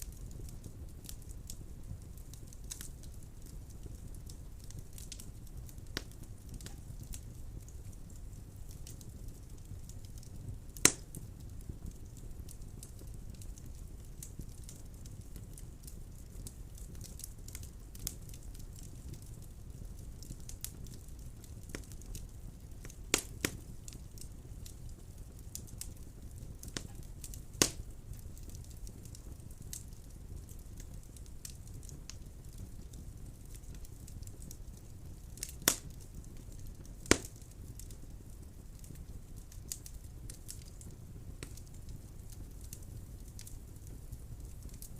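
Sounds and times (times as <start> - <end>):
fire crackling: 0.0 - 44.9
fire rumbling: 0.0 - 44.9
loud sharp pops: 27.6 - 27.8, 35.6 - 35.9, 37.1 - 37.3.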